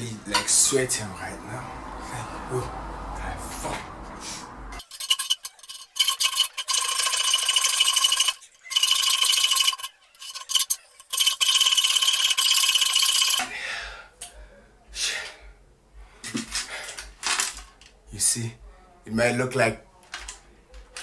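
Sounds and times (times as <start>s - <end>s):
hand tool rasping metal: 4.8s - 13.4s
metal ringing tone: 4.8s - 13.4s.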